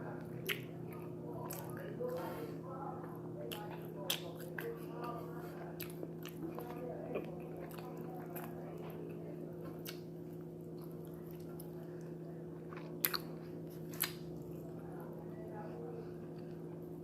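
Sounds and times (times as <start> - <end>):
steady low hum: 0.0 - 17.0
person chewing food: 0.4 - 2.4, 3.0 - 14.7.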